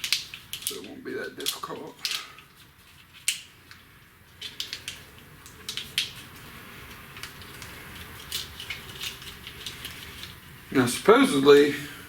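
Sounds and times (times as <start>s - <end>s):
clicks of small parts and tools: 0.0s - 3.8s.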